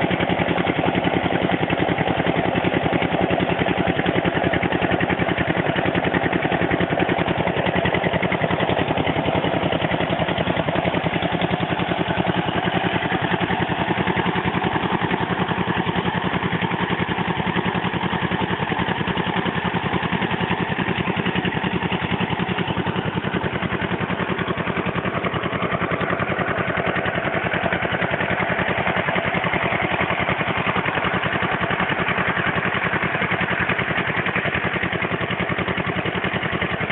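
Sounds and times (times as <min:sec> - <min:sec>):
diesel water pump engine running: 0:00.0 - 0:36.9.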